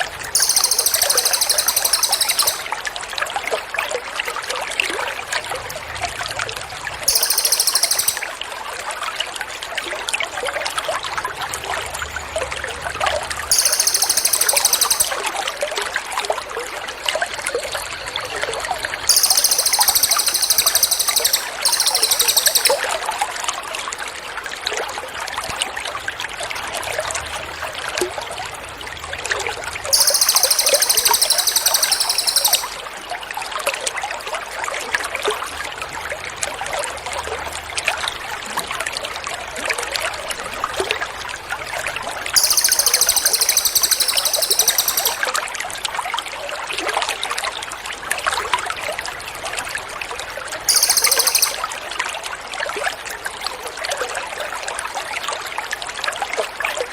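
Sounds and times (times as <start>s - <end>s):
songbird buzzy trill: 0.4s - 2.7s, 7.1s - 8.3s, 13.5s - 15.2s, 19.1s - 22.9s, 30.0s - 32.8s, 42.4s - 45.3s, 50.7s - 51.7s.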